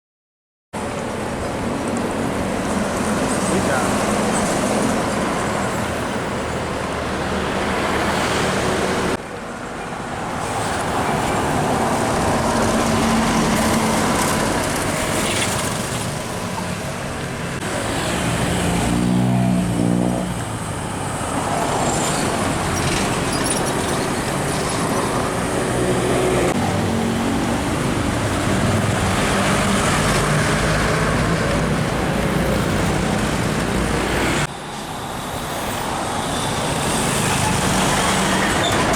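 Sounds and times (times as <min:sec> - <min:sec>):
trucks and cars driving past: 0:00.8 - 0:38.9
tyre and road noise: 0:00.8 - 0:38.9
diesel engines running: 0:08.7 - 0:38.9.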